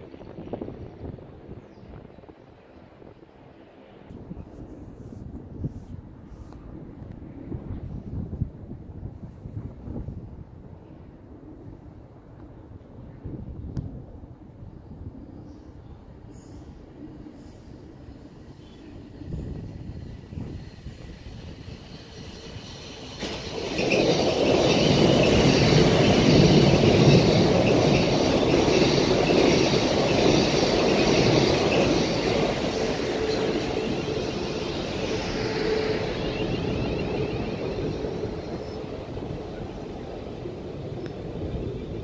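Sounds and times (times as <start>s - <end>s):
train wheels rumbling on rails: 16.6s - 42.0s.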